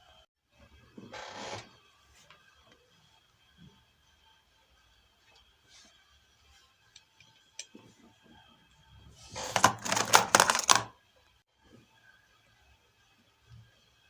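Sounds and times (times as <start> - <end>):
small tools clattering and scraping: 9.3 - 10.9.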